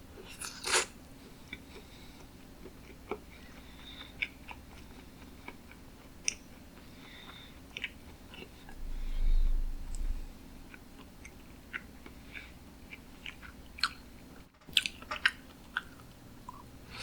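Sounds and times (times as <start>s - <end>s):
low thump: 8.7s - 10.6s.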